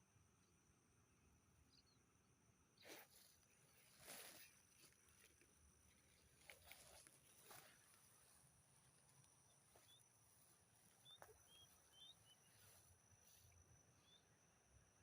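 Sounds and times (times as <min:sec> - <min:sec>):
high-pitched insect drone: 0:03.0 - 0:15.0.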